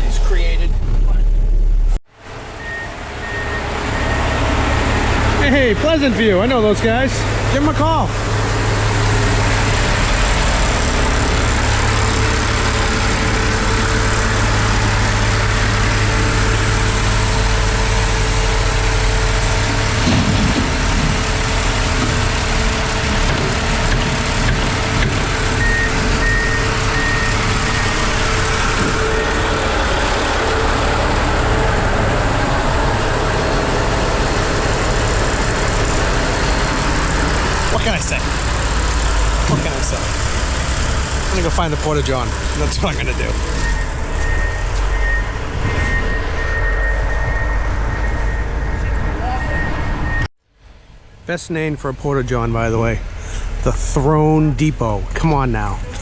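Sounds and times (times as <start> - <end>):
diesel truck engine running: 0.0 - 50.9
backup alarm beeping: 2.6 - 4.6, 25.6 - 28.2, 43.6 - 50.3.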